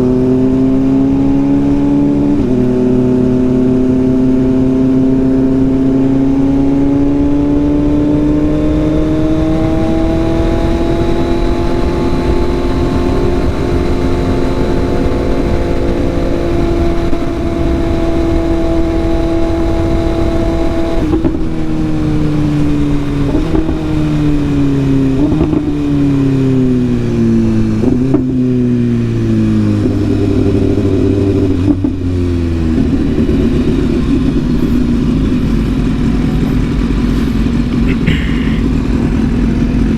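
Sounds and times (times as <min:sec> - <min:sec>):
motorcycle engine revving: 0:00.0 - 0:39.9
wind rush: 0:08.0 - 0:28.1.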